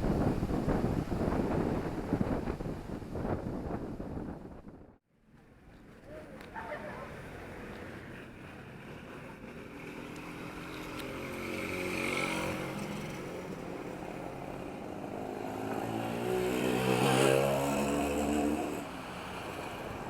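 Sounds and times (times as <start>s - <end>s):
vehicles passing: 5.4s - 20.0s.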